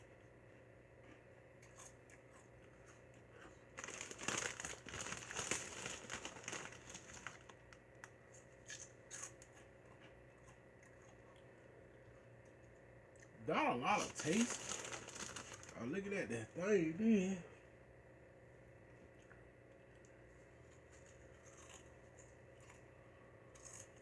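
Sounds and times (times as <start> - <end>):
plastic snack bag crinkling: 3.7 - 7.8, 13.8 - 16.1.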